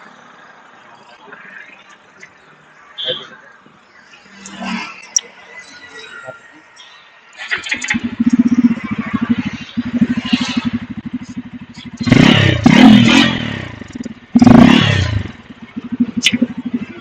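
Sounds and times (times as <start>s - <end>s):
motorcycle engine idling and revving: 7.5s - 17.0s.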